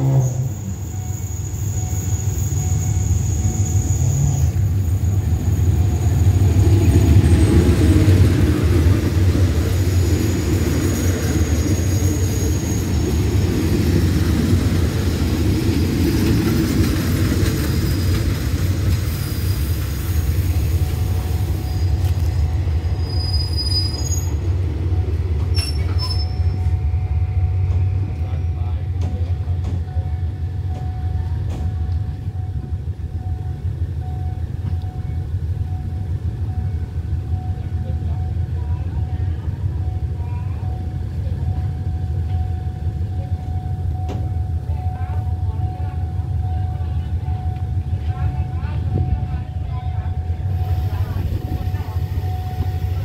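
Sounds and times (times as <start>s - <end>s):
wheel and brake squeals: 0.0s - 6.2s, 9.9s - 14.0s, 16.4s - 24.5s, 25.4s - 26.8s
passenger train rumbling past: 0.0s - 53.0s.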